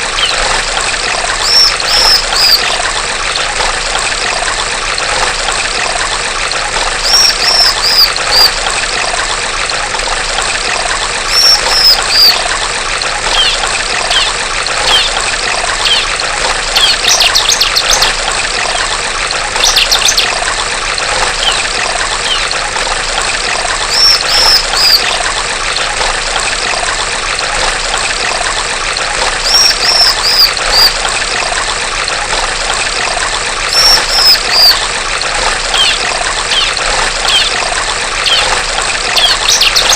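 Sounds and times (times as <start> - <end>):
running water trickling: 0.0 - 39.9
bird trills: 0.2 - 0.4, 1.4 - 2.8, 7.0 - 8.6, 11.3 - 12.4, 13.3 - 15.2, 15.8 - 16.1, 16.8 - 18.1, 19.6 - 20.3, 21.4 - 21.6, 22.2 - 22.5, 23.9 - 25.2, 29.4 - 31.0, 33.7 - 34.8, 35.7 - 37.6, 38.2 - 39.9
bird calling high falling notes: 1.4 - 2.8, 11.3 - 12.4, 21.4 - 22.5.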